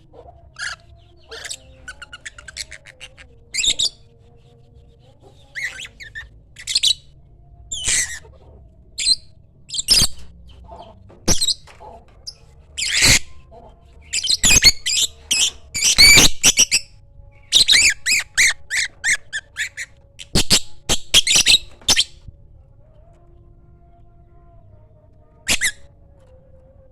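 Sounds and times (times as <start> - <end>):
bird squawking and chirping: 0.0 - 4.0, 5.3 - 7.1, 7.7 - 16.9, 17.5 - 22.2, 25.5 - 25.9.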